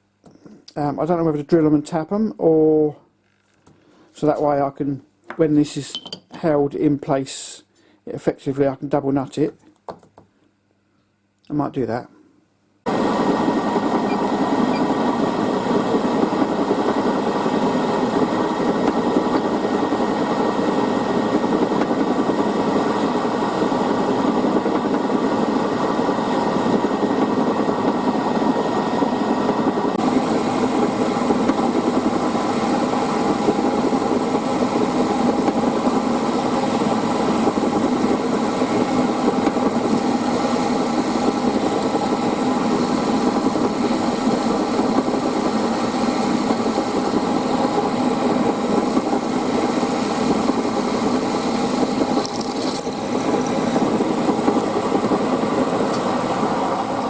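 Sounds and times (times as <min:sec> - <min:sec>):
machine spindle drilling metal: 0:30.1 - 0:55.4.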